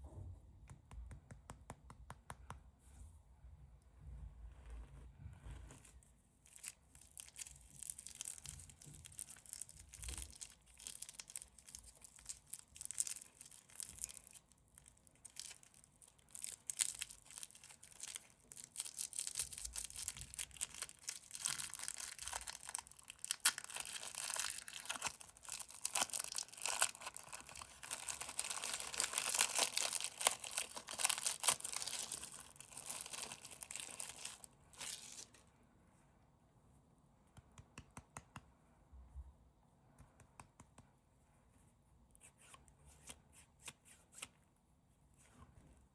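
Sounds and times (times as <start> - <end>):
candy wrappers crinkling: 6.4 - 35.4.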